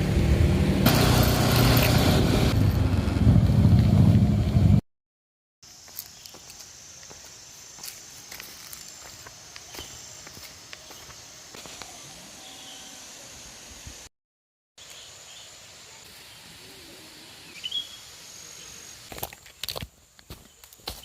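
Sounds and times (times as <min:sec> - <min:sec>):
steady background hiss: 0:05.6 - 0:14.1, 0:14.8 - 0:20.4
bird chirps: 0:17.5 - 0:18.8.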